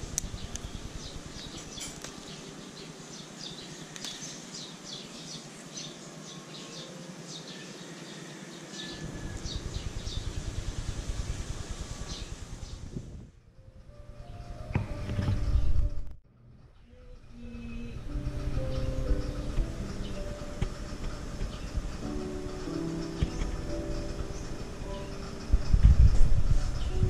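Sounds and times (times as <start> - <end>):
small birds chirping: 0.0 - 13.1, 16.6 - 27.0
wind rumble on microphone: 9.0 - 16.2, 17.2 - 22.2, 24.4 - 27.0.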